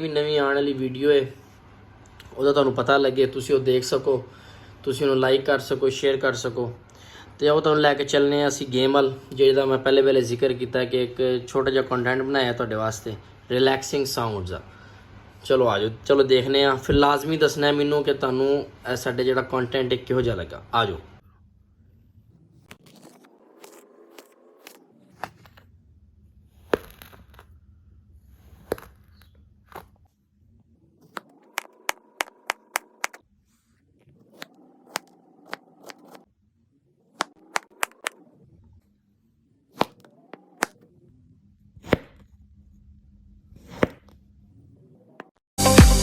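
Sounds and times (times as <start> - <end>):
faint steady hum: 0.0 - 22.8.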